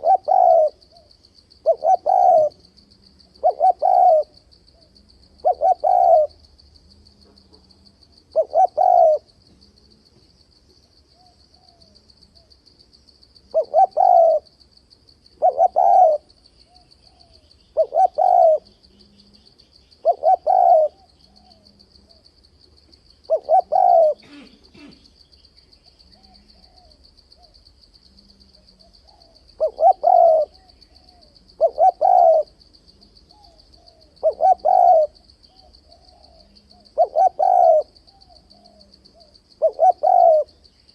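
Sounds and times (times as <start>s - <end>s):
dove cooing: 0.0s - 6.5s, 8.3s - 9.6s, 13.5s - 14.5s, 15.4s - 22.2s, 23.2s - 25.1s, 26.1s - 27.6s, 28.2s - 40.6s
faint insect trill: 0.0s - 40.9s.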